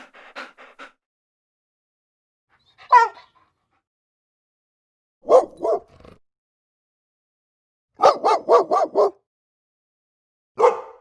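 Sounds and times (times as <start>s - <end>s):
dog yelping: 2.7s - 3.4s
dog barking: 2.8s - 3.4s, 5.2s - 5.9s, 8.0s - 9.2s, 10.6s - 11.0s.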